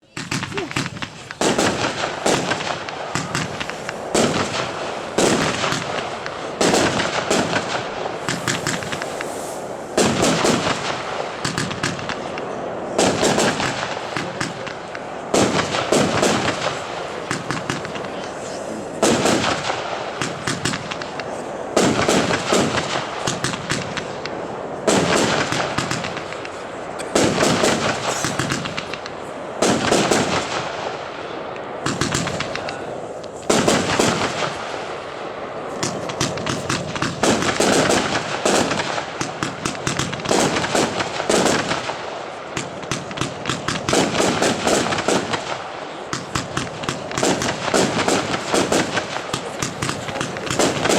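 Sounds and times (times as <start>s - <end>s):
firework cake rapid bangs: 0.0s - 50.9s.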